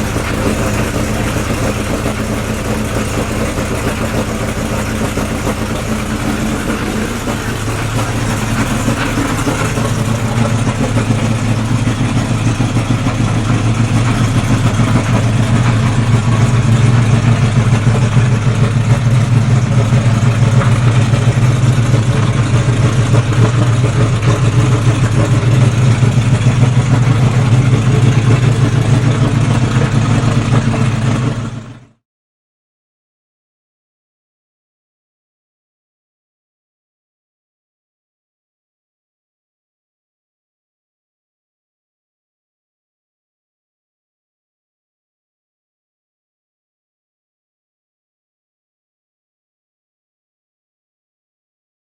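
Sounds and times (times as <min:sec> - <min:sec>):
car engine running steadily: 0:00.0 - 0:32.0.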